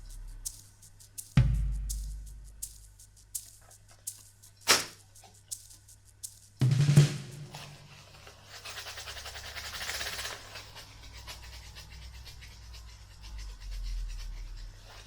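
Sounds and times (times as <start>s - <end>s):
steady low hum: 0.0s - 4.6s
drum hit ringing: 6.6s - 8.0s.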